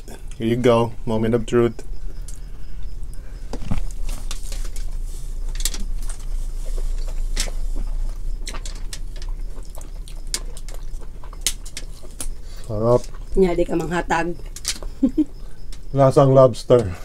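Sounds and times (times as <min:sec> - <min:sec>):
low hum: 0:00.0 - 0:17.0
chewing with wet clicks: 0:01.7 - 0:03.2, 0:05.5 - 0:16.0.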